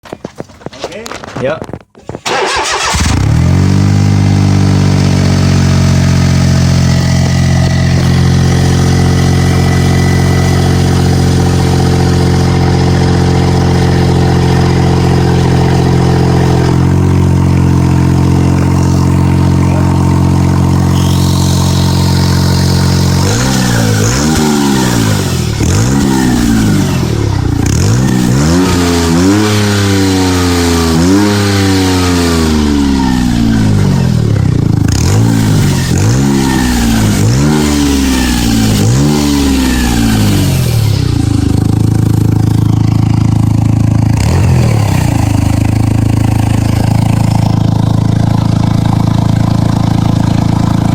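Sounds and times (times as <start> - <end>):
car engine throttle blips: 2.2 - 29.4.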